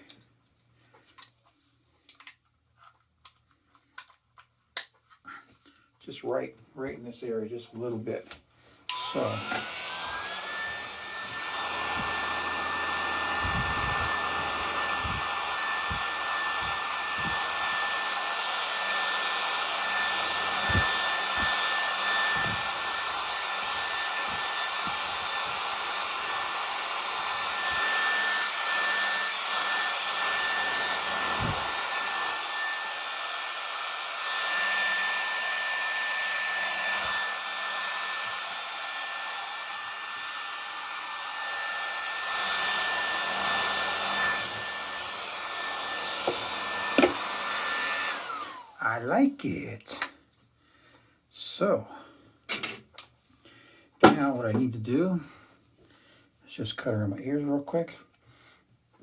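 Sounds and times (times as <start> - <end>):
hair clipper motor whine: 8.9 - 48.8
vacuum fan rushing: 9.0 - 48.8.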